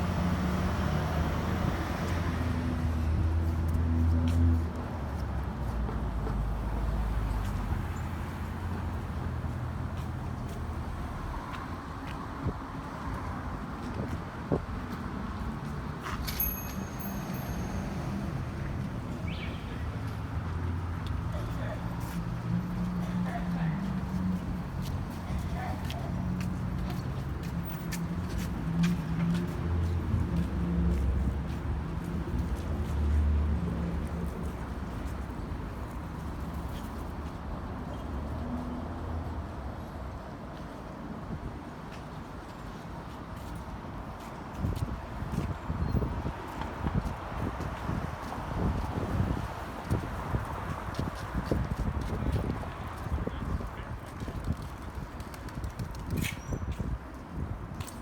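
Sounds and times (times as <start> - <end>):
low rumble of street traffic: 0.0 - 58.0
vehicles passing: 0.0 - 58.0
wind buffeting microphone: 44.6 - 57.8.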